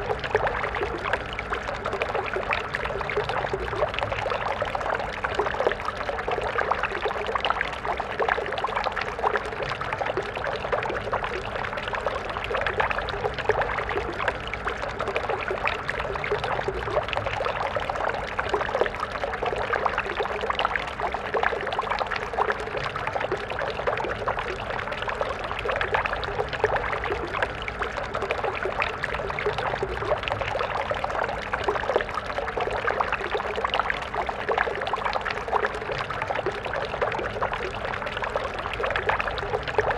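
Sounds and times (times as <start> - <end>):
stream burbling over stones: 22.5 - 39.9.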